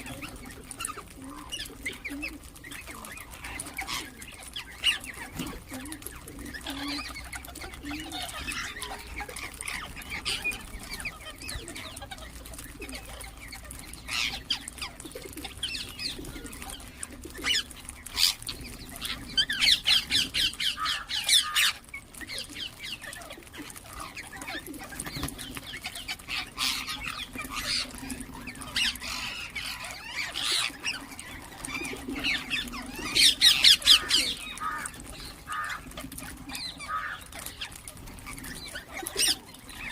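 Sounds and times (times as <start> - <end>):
parrots chirping and calling: 0.0 - 39.9.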